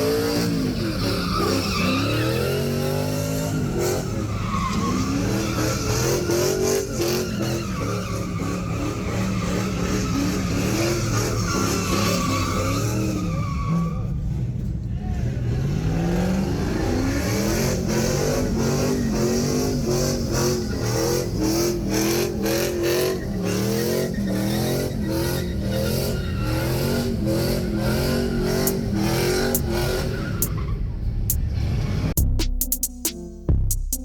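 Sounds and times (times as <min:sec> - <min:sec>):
car engine revving hard: 0:00.0 - 0:13.4, 0:15.2 - 0:30.6
spinning tyres hissing: 0:18.0 - 0:32.0.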